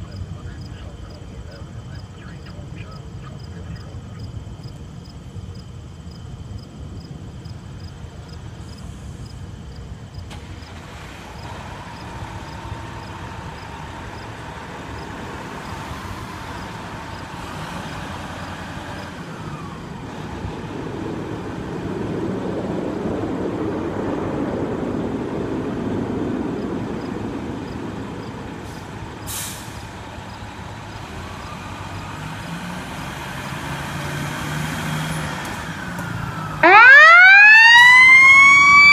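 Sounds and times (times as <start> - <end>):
fire engine diesel engine rumble: 0.0 - 38.9
air brake hiss: 28.7 - 29.9
siren wailing: 35.7 - 38.9.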